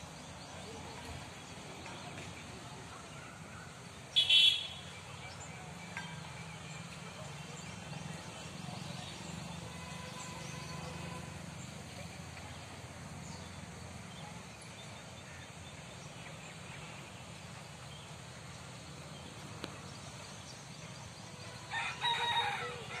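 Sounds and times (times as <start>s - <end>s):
loud bird call: 4.1s - 5.0s.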